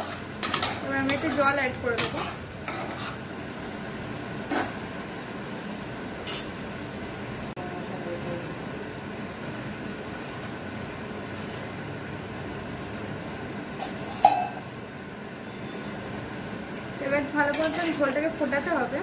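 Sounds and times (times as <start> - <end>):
metal spatula scraping pan: 0.0 - 3.3, 17.5 - 18.7
food sizzling in oil: 0.0 - 7.6, 17.3 - 19.0.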